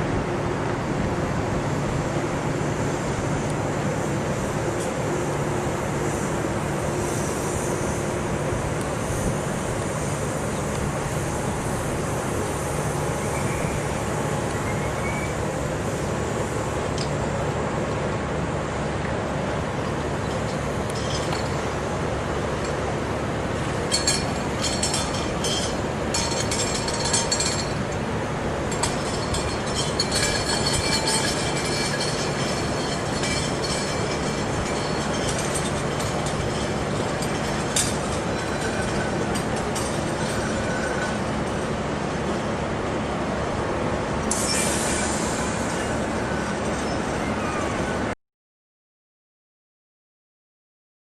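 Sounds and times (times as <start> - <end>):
diesel locomotive engine running: 0.0 - 48.2
train rolling along rails: 0.0 - 48.2
faint thin squeal: 13.2 - 14.0, 44.4 - 48.0.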